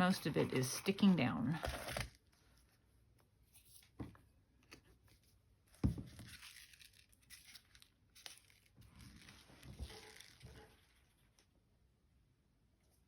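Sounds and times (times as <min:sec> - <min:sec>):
paper rustling and crinkling: 0:01.5 - 0:02.7, 0:04.6 - 0:11.5.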